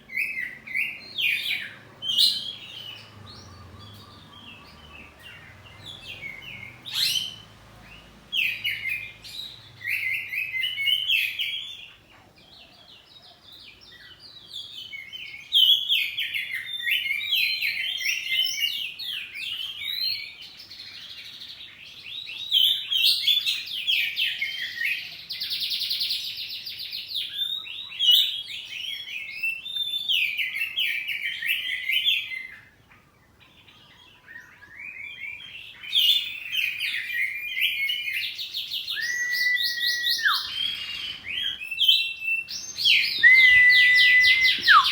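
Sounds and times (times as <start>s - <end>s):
bird singing whistled phrases: 34.4s - 44.9s.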